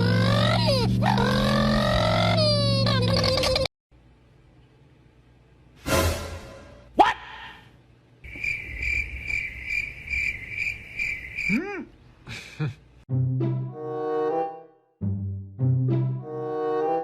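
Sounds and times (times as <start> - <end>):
high pulsing chirping: 8.3 - 11.6.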